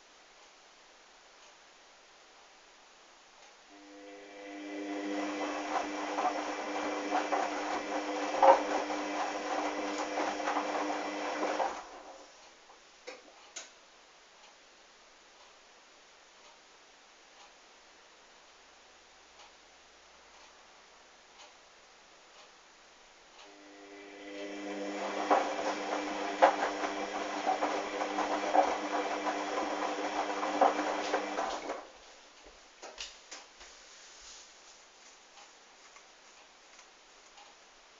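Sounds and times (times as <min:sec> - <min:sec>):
washing machine motor whine: 0:03.8 - 0:12.2, 0:23.5 - 0:31.9.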